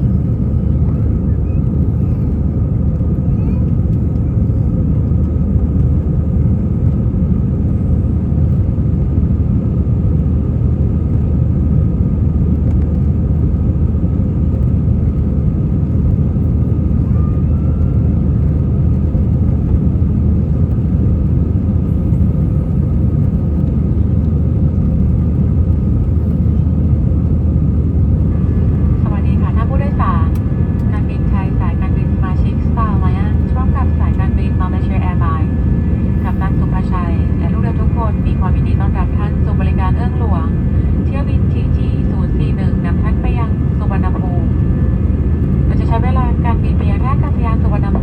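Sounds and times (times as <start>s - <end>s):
aircraft cabin rumble: 0.0s - 48.0s
faint steady whine: 21.6s - 48.0s.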